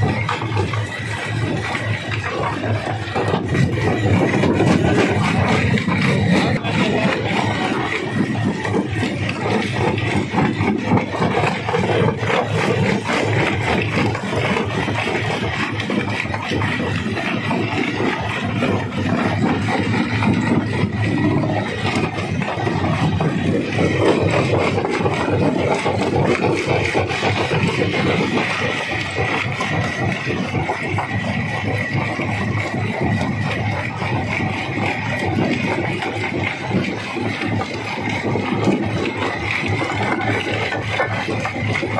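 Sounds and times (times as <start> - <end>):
rock crusher running: 0.0 - 41.9
rocks rattling and grinding: 0.0 - 41.9.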